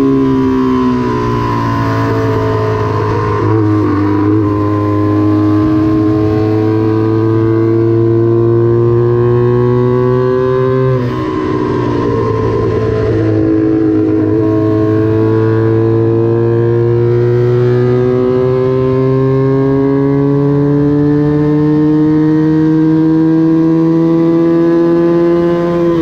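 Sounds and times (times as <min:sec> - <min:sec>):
motorcycle engine at high revs: 0:00.0 - 0:26.0.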